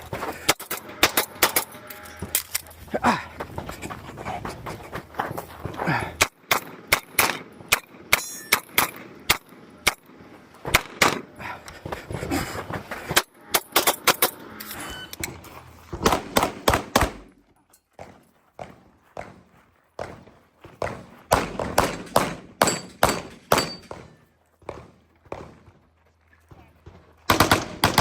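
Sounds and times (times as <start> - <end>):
pistol shots: 16.0 - 17.3, 21.3 - 25.6, 27.3 - 28.0.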